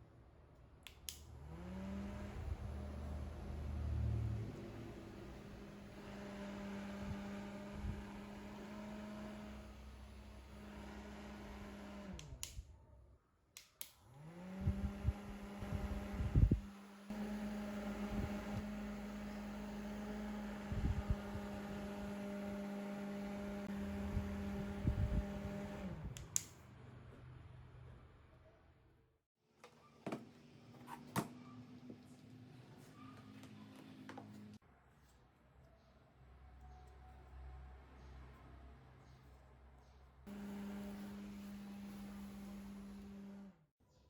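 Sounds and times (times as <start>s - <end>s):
small motor fan humming: 1.1s - 12.7s, 14.1s - 26.5s, 40.3s - 43.7s.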